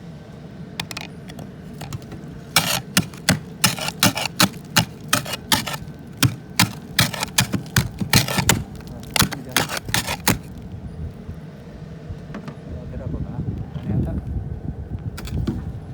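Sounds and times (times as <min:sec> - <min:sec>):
footsteps crunching on icy snow: 0:01.6 - 0:10.6.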